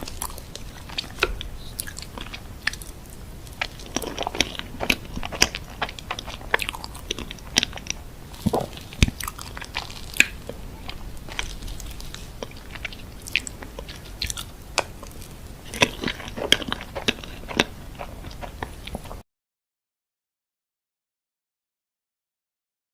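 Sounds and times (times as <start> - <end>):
chewing and biting: 0.0 - 19.2
small crunches: 0.0 - 19.2.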